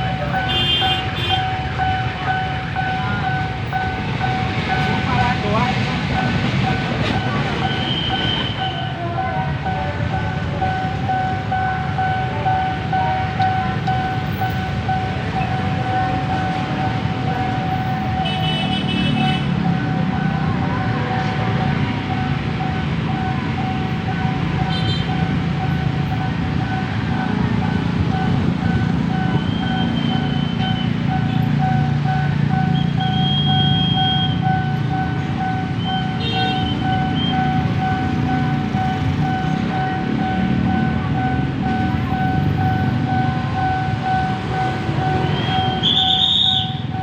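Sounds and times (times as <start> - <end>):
level crossing warning bell: 0.0 - 47.0
road traffic: 0.0 - 47.0
short high-pitched beep: 32.6 - 34.6.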